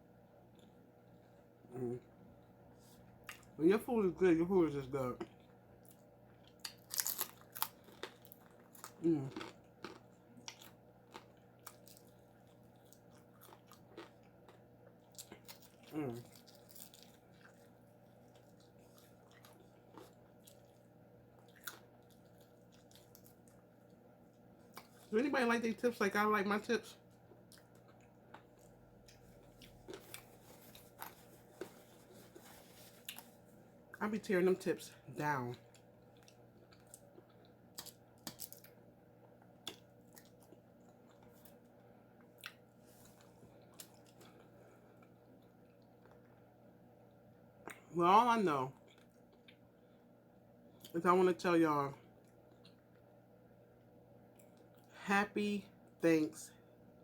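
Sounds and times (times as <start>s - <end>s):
low steady hum: 0.0s - 57.0s
mouth clicks and crunches: 5.2s - 12.2s
person chewing: 5.2s - 23.7s, 27.2s - 33.5s, 35.6s - 41.6s, 42.2s - 46.5s.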